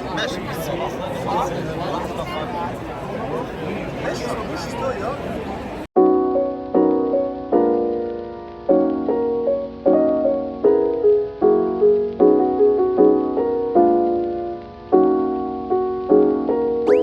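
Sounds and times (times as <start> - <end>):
soft electric piano chords: 6.0 - 17.0.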